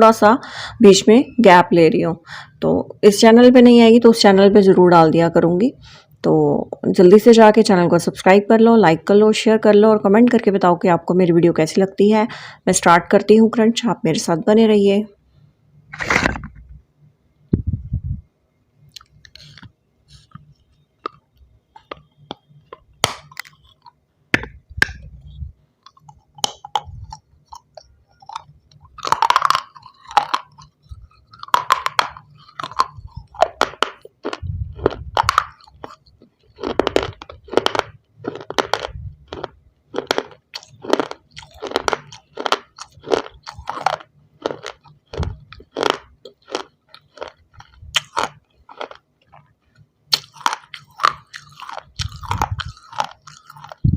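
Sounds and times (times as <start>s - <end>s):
biting and chewing shell stone: 19.0s - 25.2s, 25.8s - 53.9s.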